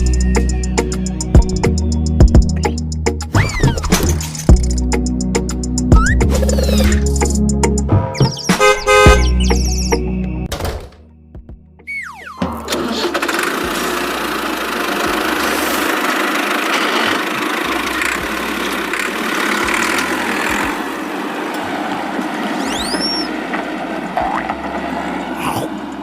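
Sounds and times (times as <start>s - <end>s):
high squeaky glides: 8.1s - 10.1s, 11.8s - 13.2s, 16.7s - 24.6s
engine running steadily: 12.5s - 26.0s.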